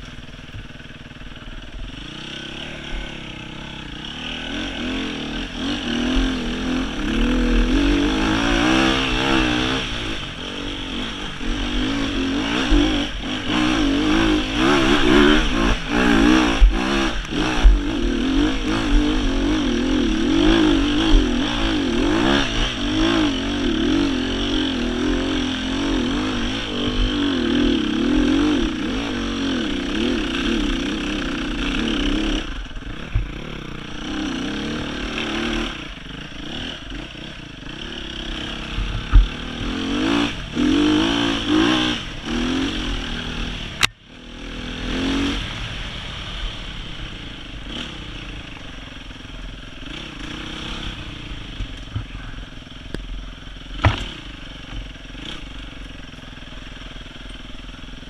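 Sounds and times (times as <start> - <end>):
motorcycle engine revving: 0.0 - 58.0
bike knocking on rough trail: 32.9 - 33.6, 38.7 - 40.0, 53.7 - 55.3.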